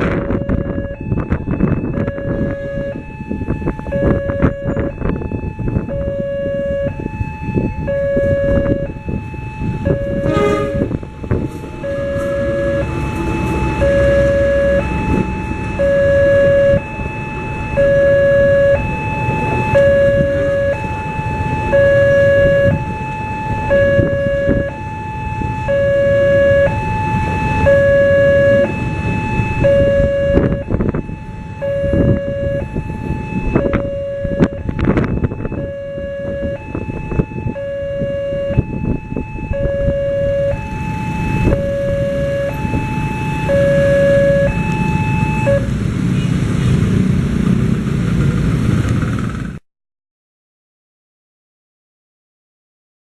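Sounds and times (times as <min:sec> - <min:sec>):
passing train rumble: 0:00.0 - 0:37.6, 0:38.5 - 0:49.6
level crossing warning siren: 0:00.0 - 0:46.3.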